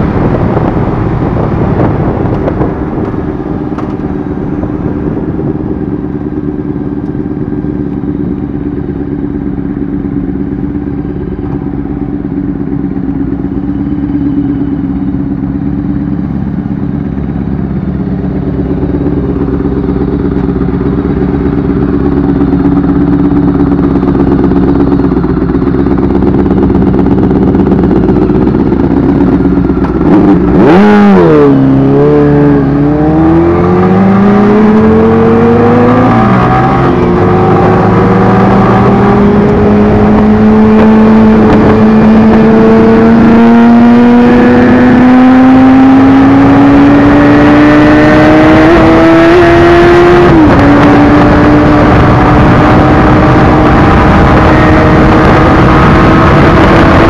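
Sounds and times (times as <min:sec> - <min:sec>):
wind noise: 0:00.0 - 0:07.5, 0:18.4 - 0:57.0
motorcycle engine: 0:00.0 - 0:57.0.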